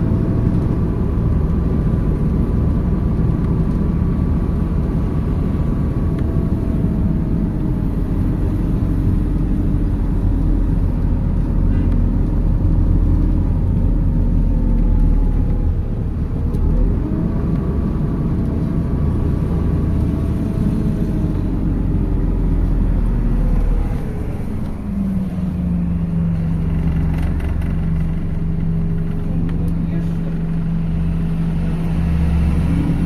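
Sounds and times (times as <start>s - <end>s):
bus engine running: 0.0s - 33.0s.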